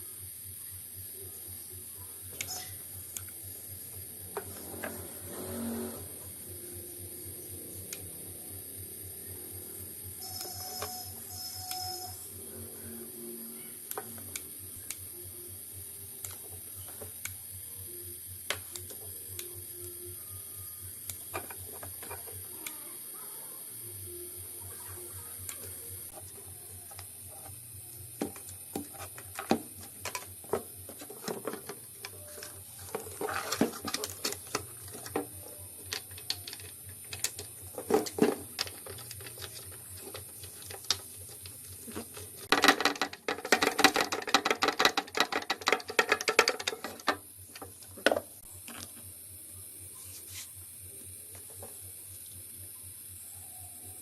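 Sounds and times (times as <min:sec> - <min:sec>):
steady low hum: 0:00.0 - 0:42.6, 0:45.2 - 0:54.0
metal parts clicking and clattering: 0:29.0 - 0:47.7.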